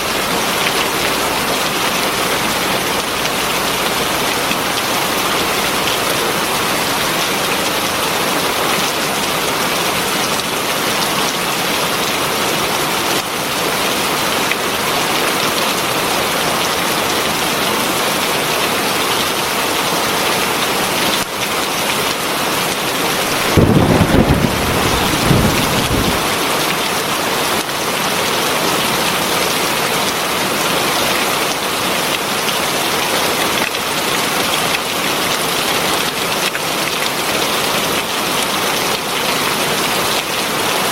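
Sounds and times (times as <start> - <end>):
heavy rain falling: 0.0 - 40.9
deep rumble of thunder: 23.3 - 26.5.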